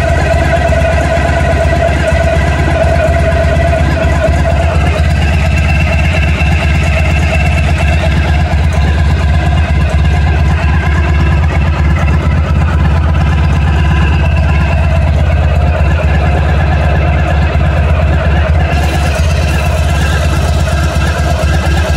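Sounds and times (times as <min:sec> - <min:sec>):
motorcycle engine idling: 0:00.0 - 0:21.9
rattling noise: 0:00.0 - 0:21.9.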